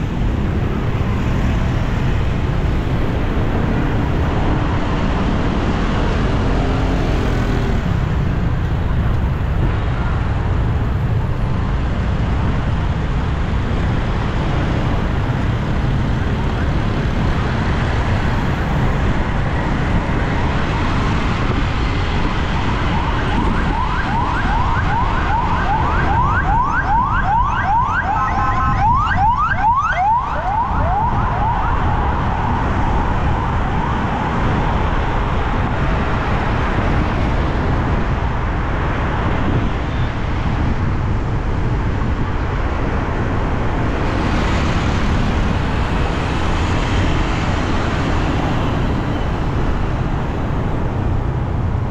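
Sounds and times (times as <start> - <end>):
road traffic noise: 0.0 - 51.9
emergency siren yelping: 22.4 - 34.8.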